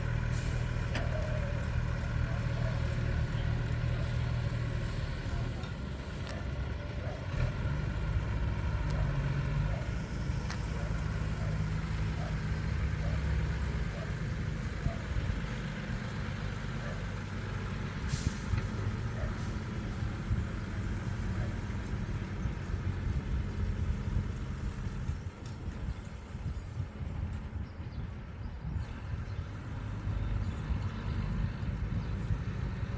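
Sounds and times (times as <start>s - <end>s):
lorry engine running: 0.0s - 32.9s
air brake hiss: 18.1s - 18.6s.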